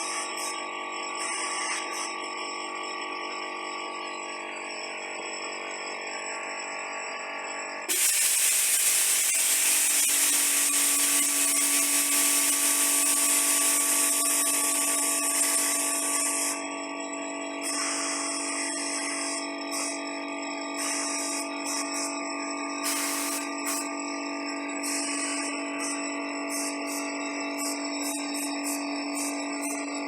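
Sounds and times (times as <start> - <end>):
steady multi-tone hum: 0.0 - 30.0
spray gun hissing: 7.9 - 16.6, 22.8 - 23.9.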